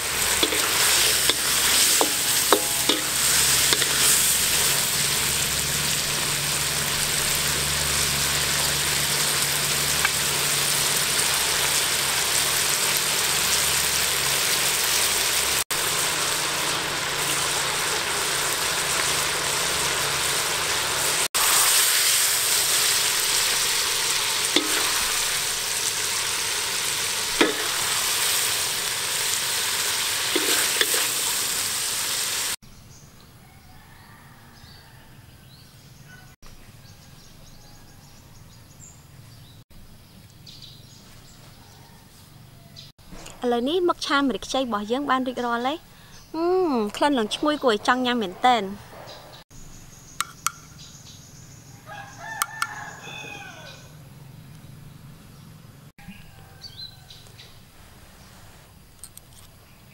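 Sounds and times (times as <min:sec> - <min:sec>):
food sizzling in a wok: 0:00.0 - 0:32.6
wooden spatula knocking pan: 0:01.2 - 0:04.0, 0:27.4 - 0:27.8.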